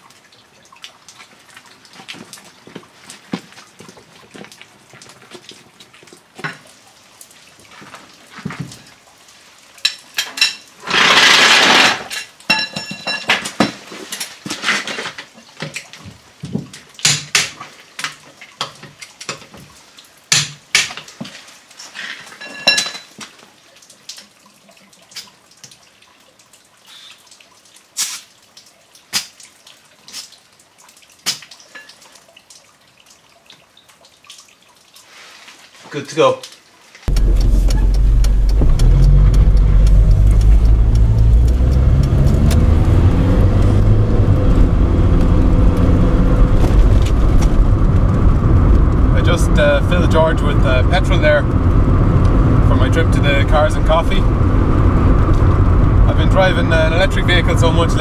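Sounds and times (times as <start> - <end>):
dripping water: 37.1 - 54.0
loud rushing noise: 37.1 - 58.0.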